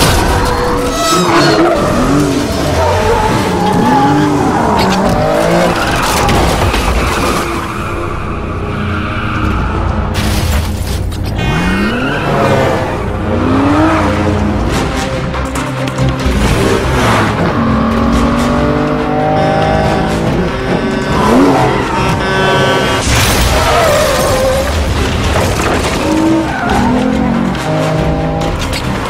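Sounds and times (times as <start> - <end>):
music: 0.0 - 29.0
tyres squealing: 0.4 - 8.0
car engines revving: 0.8 - 10.2, 11.0 - 29.0.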